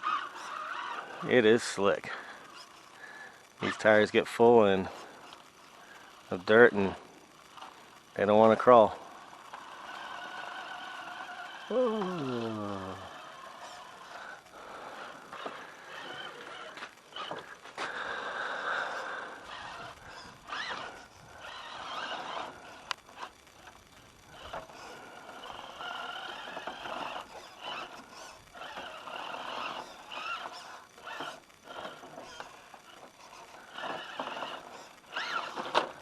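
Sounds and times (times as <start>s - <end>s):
electric motor whining: 0.0s - 1.5s, 8.7s - 36.0s.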